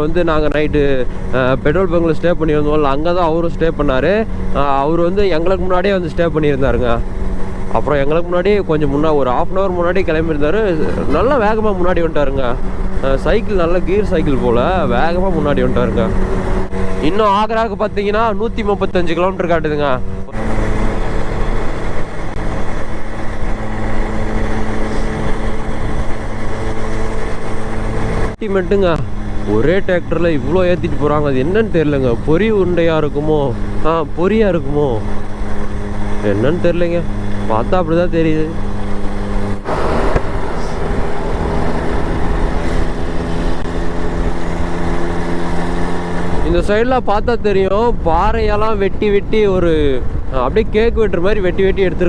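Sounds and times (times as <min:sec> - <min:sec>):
moped engine running: 0:00.0 - 0:47.1
road and wind rumble: 0:00.0 - 0:52.0
rushing noise: 0:38.6 - 0:46.6.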